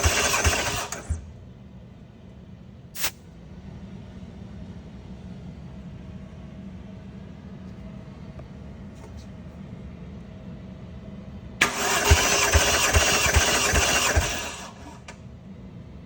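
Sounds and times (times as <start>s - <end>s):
starter motor cranking engine: 0.0s - 1.2s, 11.6s - 15.1s.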